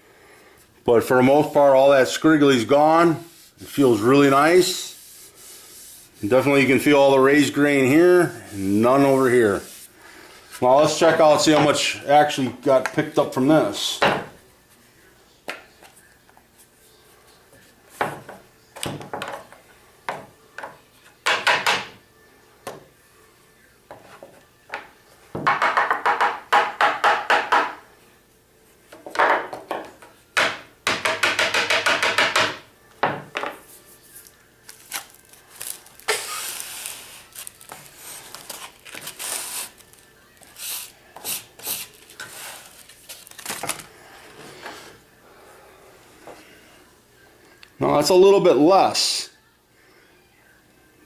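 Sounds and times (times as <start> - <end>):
dust rustling and scraping: 2.5 - 11.4.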